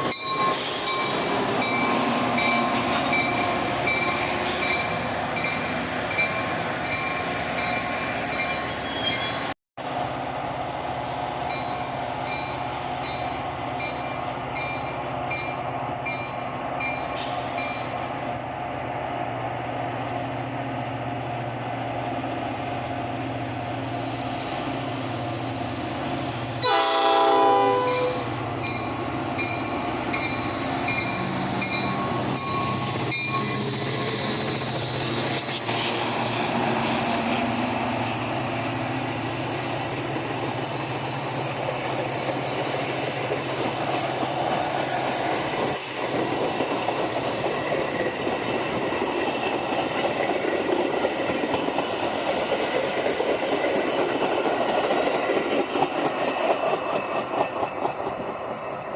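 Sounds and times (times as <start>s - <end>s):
diesel locomotive running: 0.0s - 58.9s
train cars rumbling and clattering: 0.0s - 58.9s
train horn blast: 26.6s - 28.3s.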